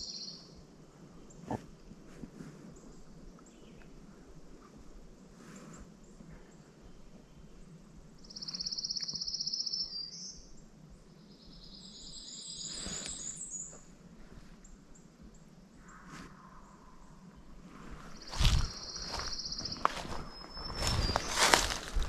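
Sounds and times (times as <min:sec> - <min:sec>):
bird twittering song: 0:00.0 - 0:00.6, 0:06.8 - 0:13.8, 0:14.6 - 0:22.0
songbird high trill: 0:08.2 - 0:10.4.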